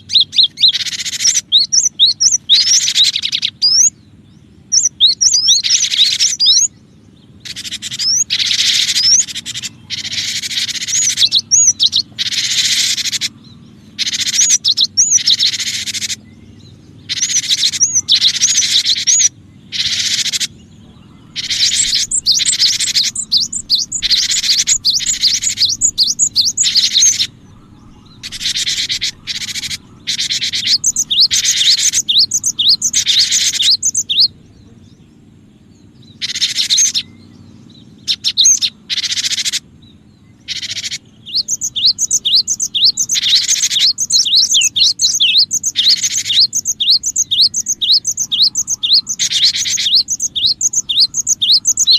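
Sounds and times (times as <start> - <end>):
faint low hum: 0.0 - 38.8, 39.8 - 51.9
bird harsh scolding chatter: 0.0 - 51.9
bird upward-sweeping notes: 17.1 - 34.4.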